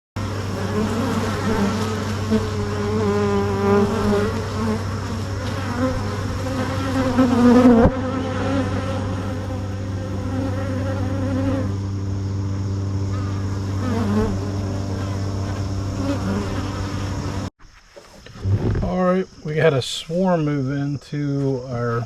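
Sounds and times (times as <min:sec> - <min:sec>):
bees buzzing: 0:00.2 - 0:17.5.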